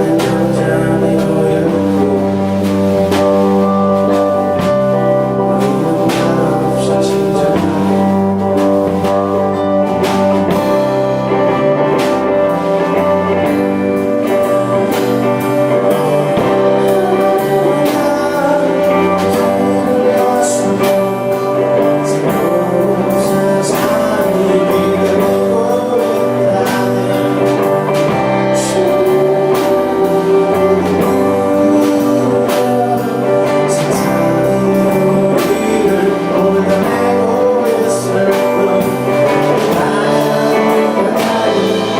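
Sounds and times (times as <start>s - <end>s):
live band playing: 0.0s - 41.9s.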